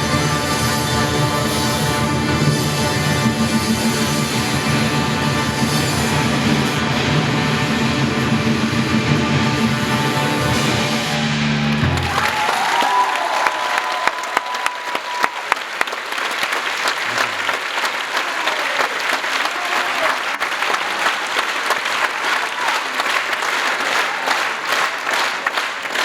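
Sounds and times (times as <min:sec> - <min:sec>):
audience applauding: 0:11.6 - 0:26.0.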